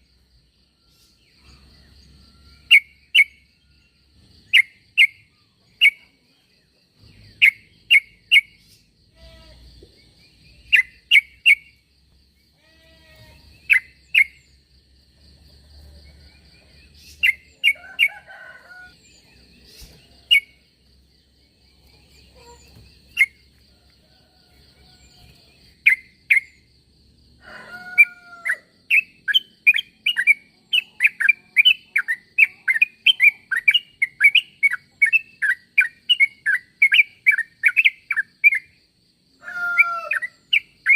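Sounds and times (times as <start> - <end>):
bird chirping and chattering: 4.4 - 9.0, 9.8 - 11.8, 13.4 - 14.6, 16.6 - 18.1, 21.3 - 23.4, 28.9 - 38.7.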